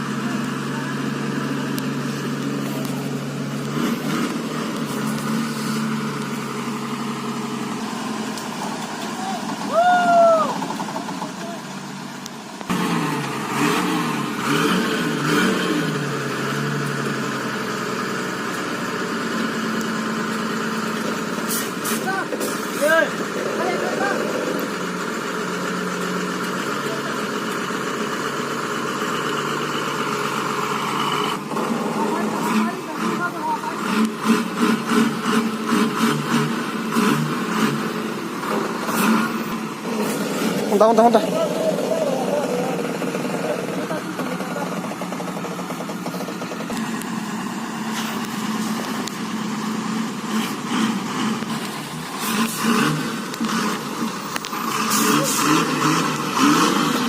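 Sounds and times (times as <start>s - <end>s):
truck engine droning: 0.0s - 57.0s.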